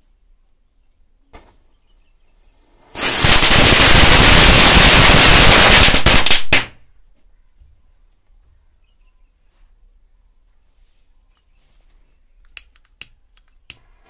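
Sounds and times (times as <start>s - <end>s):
firecrackers banging: 2.8s - 6.8s.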